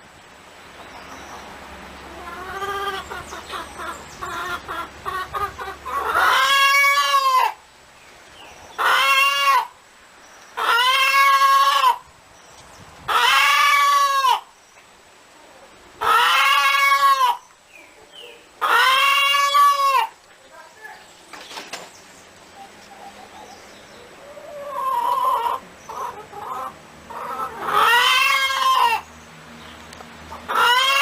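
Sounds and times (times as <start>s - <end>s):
chickens clucking: 0.7s - 7.6s, 8.4s - 9.8s, 10.4s - 29.2s, 29.8s - 31.0s
chickens long drawn-out calls: 0.7s - 7.7s, 8.6s - 9.8s, 10.5s - 12.2s, 13.0s - 14.6s, 15.3s - 20.3s, 22.4s - 29.1s, 30.3s - 31.0s.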